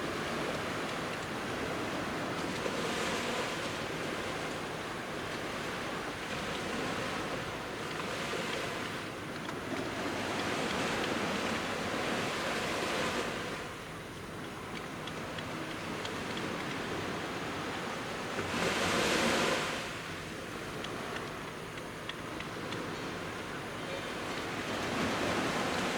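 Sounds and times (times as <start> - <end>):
sea waves breaking on beach: 0.0 - 21.4, 22.2 - 25.9.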